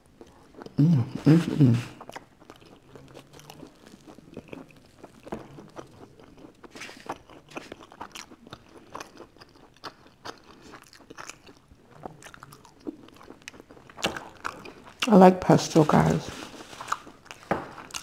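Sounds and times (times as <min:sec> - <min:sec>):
chewing crusty bread: 0:00.0 - 0:18.0.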